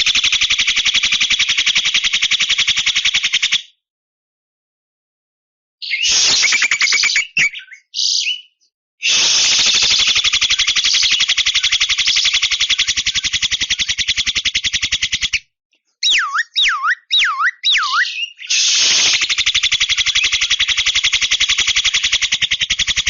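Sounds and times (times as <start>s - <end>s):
bird swooping whistles: 5.8s - 12.4s, 16.0s - 20.8s
bird harsh rattling call: 9.1s - 15.4s, 16.0s - 23.0s.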